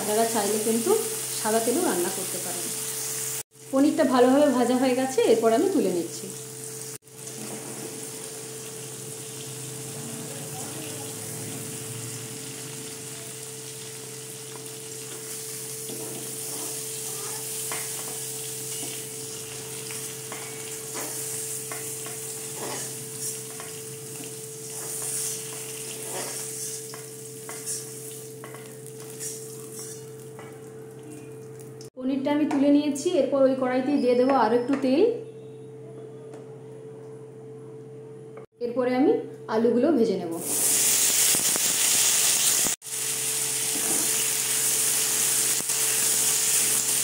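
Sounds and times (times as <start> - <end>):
cheese sizzling in hot oil: 0.0 - 32.0, 40.4 - 47.0
metal spatula scraping pan: 20.0 - 23.8, 24.6 - 30.1.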